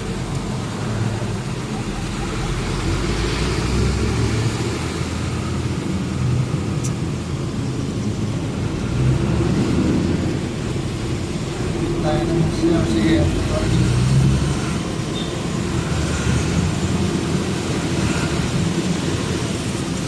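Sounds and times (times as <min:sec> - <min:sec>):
truck engine with road rumble: 0:00.0 - 0:20.0.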